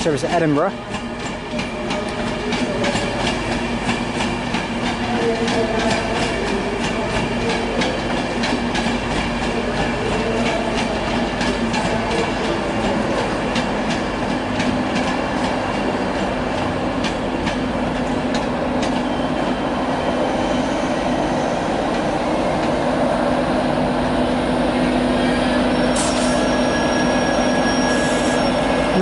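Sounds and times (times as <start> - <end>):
train rumble: 0.0 - 29.0
wheels clicking over rail joints: 0.3 - 19.0.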